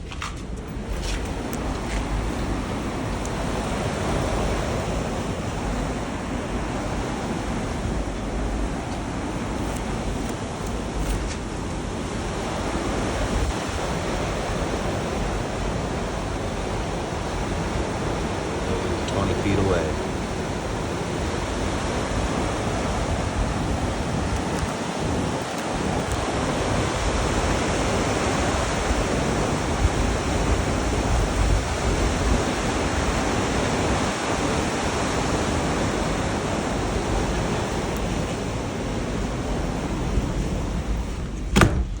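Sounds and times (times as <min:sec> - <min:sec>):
blizzard wind blowing hard: 0:00.0 - 0:42.0
sharp knock: 0:41.5 - 0:42.0.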